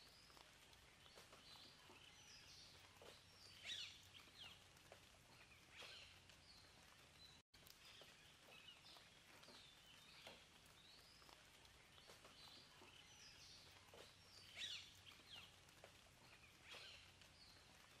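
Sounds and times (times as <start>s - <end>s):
background hiss: 0.0s - 18.0s
small birds chirping: 0.0s - 18.0s.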